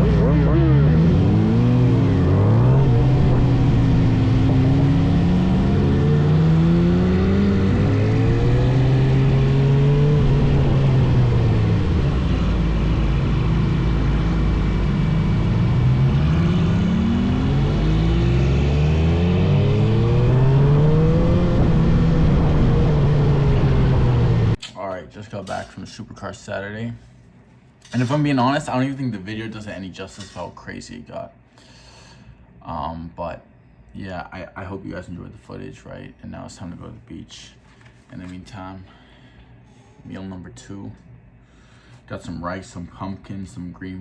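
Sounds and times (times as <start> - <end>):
road and wind noise: 0.0 - 24.6
vehicle engine accelerating: 0.0 - 24.6.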